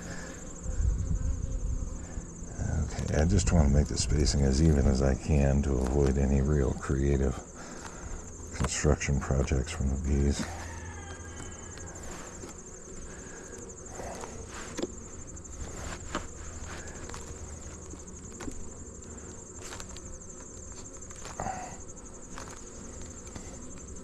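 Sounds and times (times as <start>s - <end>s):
honey bees humming: 0.0s - 24.0s
insect trill: 0.0s - 24.0s
wooden hive frames knocking: 3.0s - 24.0s.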